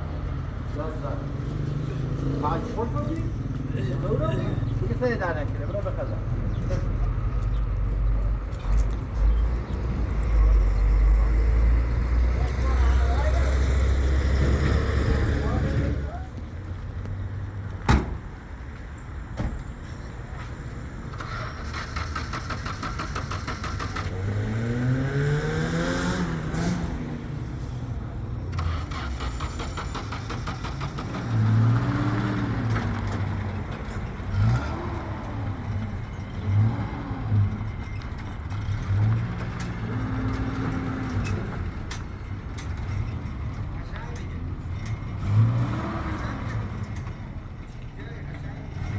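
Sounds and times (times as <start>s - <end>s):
vehicle engine revving: 0.1s - 5.2s, 5.9s - 16.3s, 21.1s - 27.8s, 28.5s - 41.8s, 45.1s - 47.2s.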